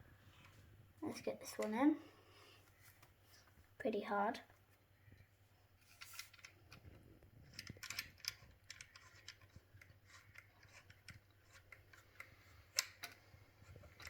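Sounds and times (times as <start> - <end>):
small clicks and scrapes of wire: 5.1 - 14.0.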